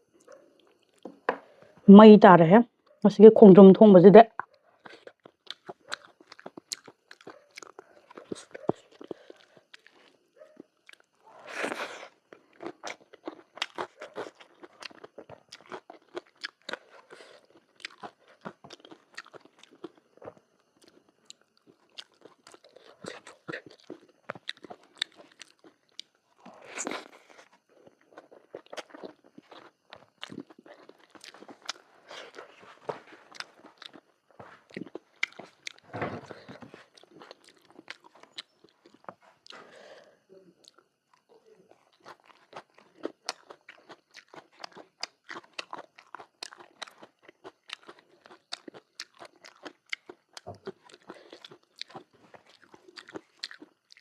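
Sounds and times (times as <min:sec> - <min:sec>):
person chewing and crunching: 0:00.0 - 0:01.6, 0:04.4 - 0:54.0.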